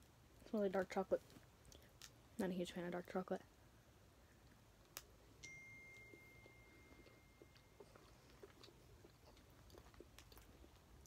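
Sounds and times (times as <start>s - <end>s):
faint high tone: 5.4s - 8.2s
chewing with mouth clicks: 6.0s - 11.0s.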